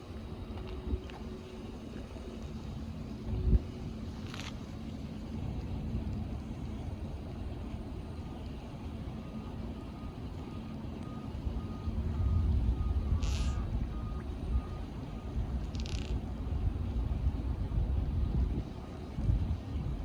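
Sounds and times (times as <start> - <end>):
faint electronic beeping: 9.2 - 15.9.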